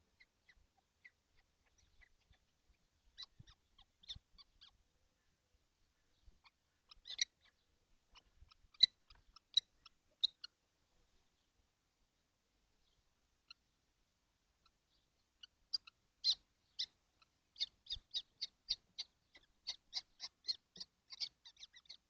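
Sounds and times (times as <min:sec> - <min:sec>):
nestlings chirping: 0:00.0 - 0:05.3, 0:06.0 - 0:10.6, 0:14.6 - 0:22.0.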